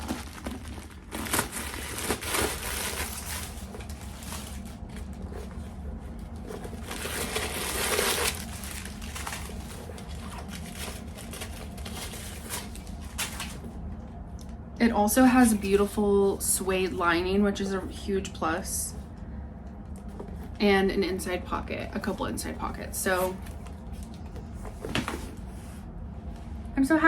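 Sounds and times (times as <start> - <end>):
packaging rustling and crinkling: 0.0 - 13.8.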